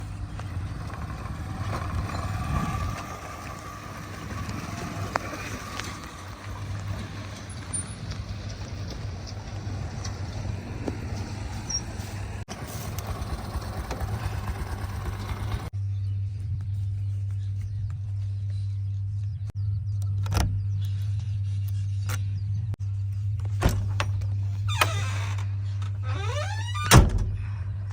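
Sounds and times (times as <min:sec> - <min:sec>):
rough machinery working noise: 0:00.0 - 0:15.7
diesel engine hum: 0:00.0 - 0:24.6.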